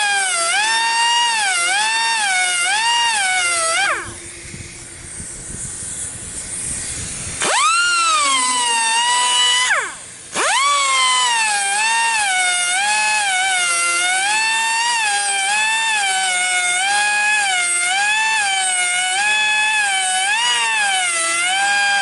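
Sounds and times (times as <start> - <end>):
grinder whining on metal: 0.0 - 22.0.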